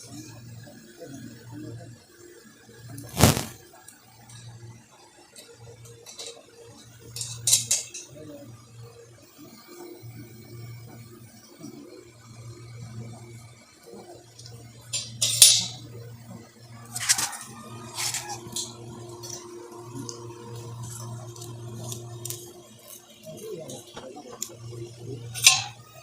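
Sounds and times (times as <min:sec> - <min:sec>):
rasping tape sounds: 0:03.1 - 0:03.6, 0:16.9 - 0:18.7.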